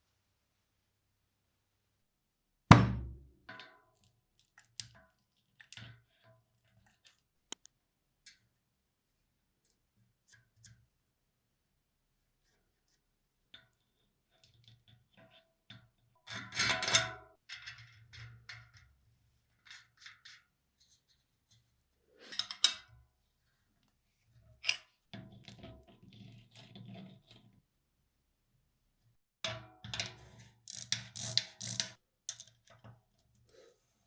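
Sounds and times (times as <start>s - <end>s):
parts and tools clicking and knocking: 29.9s - 33.0s.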